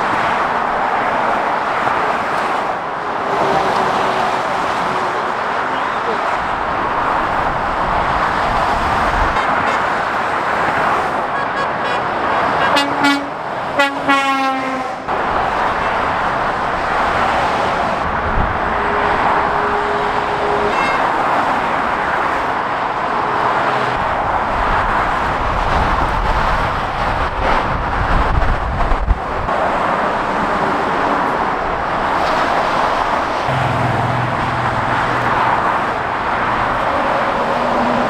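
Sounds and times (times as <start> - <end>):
heavy motorway traffic roar: 0.0 - 38.0
vehicle horn tooting: 11.3 - 15.0, 18.6 - 21.4, 33.5 - 36.1.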